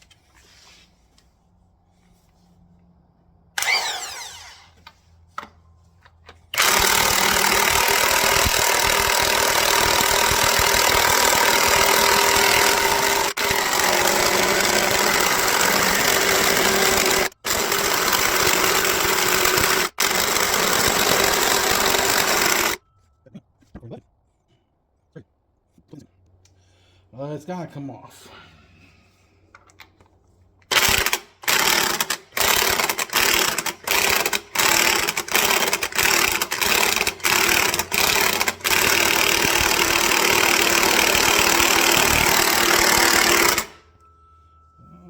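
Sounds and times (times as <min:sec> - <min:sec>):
impact wrench running: 0:03.6 - 0:05.0, 0:06.5 - 0:22.8, 0:30.6 - 0:43.9.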